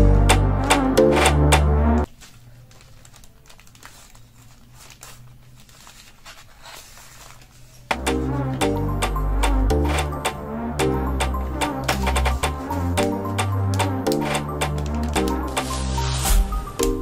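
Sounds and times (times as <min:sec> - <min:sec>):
background music: 0:00.0 - 0:02.1, 0:07.9 - 0:17.0
packaging crinkling and rustling: 0:02.0 - 0:07.9, 0:11.8 - 0:16.4.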